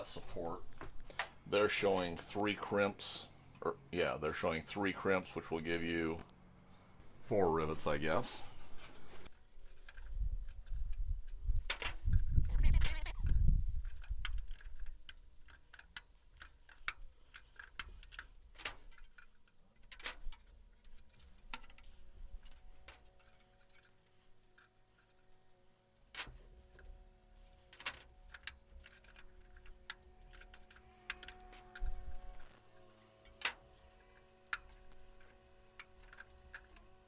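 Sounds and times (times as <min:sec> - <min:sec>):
hand tools clicking on metal: 0:09.3 - 0:37.0.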